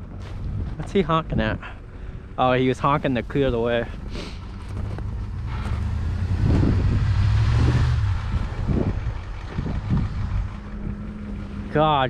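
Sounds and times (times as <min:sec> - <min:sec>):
truck engine under load: 0:00.0 - 0:12.0
tyre and trail noise: 0:00.0 - 0:12.0
truck jolting over bumps: 0:02.8 - 0:12.0.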